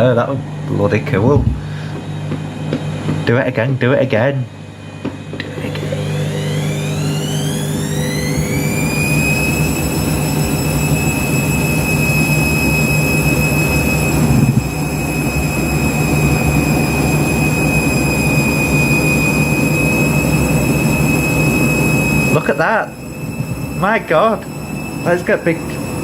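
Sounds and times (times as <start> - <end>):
washing machine motor whine: 0.0 - 26.0.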